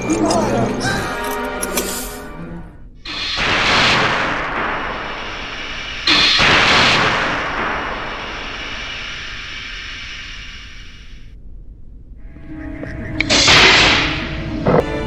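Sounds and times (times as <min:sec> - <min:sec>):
sci-fi explosion blasts: 0:03.1 - 0:11.2
hissing ringing decay: 0:03.1 - 0:11.3.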